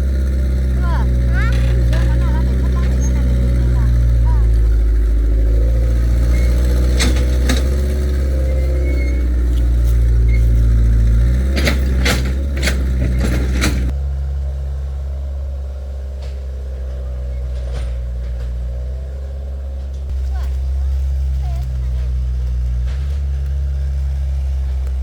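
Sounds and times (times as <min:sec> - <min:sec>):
excavator engine running: 0:00.0 - 0:25.0.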